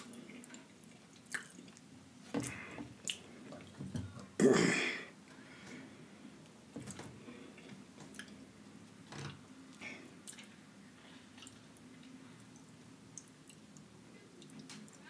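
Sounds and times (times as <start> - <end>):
person chewing: 0.0 - 3.2.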